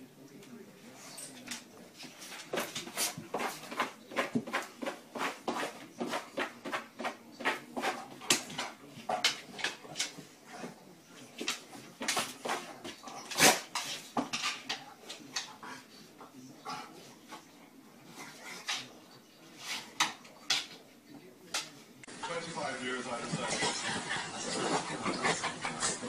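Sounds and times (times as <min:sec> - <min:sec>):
dog claws scratching floor: 0:01.2 - 0:15.6.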